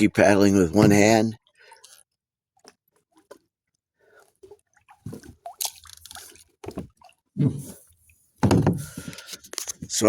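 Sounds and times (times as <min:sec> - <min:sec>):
kayak paddle splashing in water: 0:04.1 - 0:09.1.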